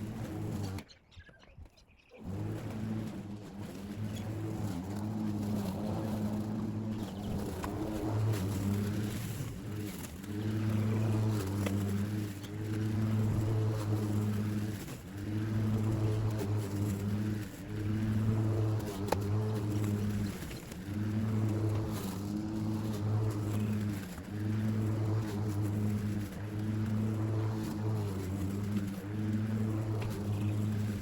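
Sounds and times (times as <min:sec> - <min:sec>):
battery lawn mower running: 0:00.0 - 0:00.9, 0:02.2 - 0:31.0.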